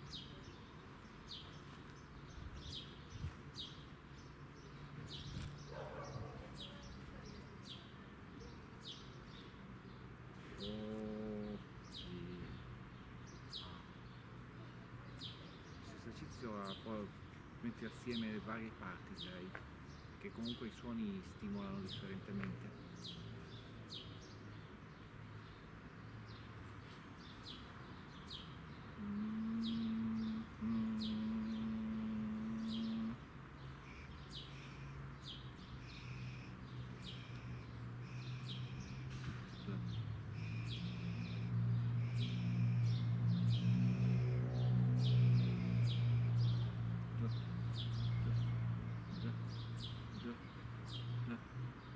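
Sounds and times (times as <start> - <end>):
bird chirping: 0.0 - 14.4, 15.0 - 51.9
low held tone: 29.0 - 33.2.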